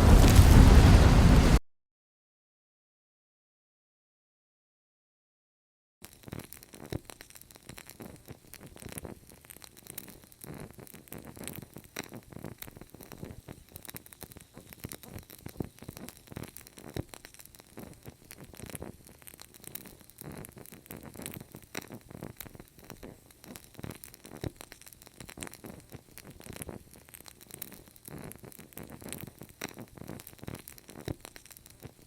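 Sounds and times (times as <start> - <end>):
fire crackling: 0.0 - 1.6, 6.0 - 32.0
low rush of flame: 0.0 - 1.6.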